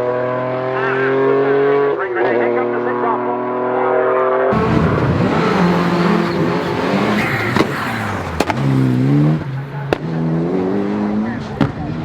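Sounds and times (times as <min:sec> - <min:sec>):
rally car engine revving: 0:00.0 - 0:12.0
exhaust cracks: 0:04.5 - 0:10.3.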